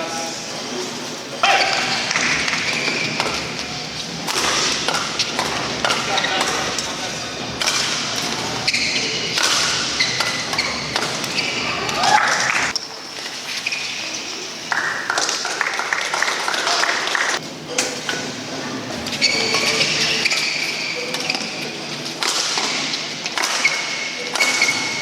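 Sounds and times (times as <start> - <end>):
shoe squeaks: 1.4 - 7.2, 8.1 - 14.5, 19.1 - 22.0, 22.8 - 25.0
rackets striking shuttlecock: 1.4 - 12.6, 22.2 - 25.0.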